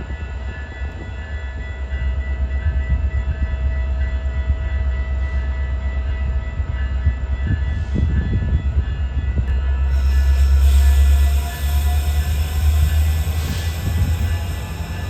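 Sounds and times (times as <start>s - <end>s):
train rumbling on track: 0.0s - 15.0s.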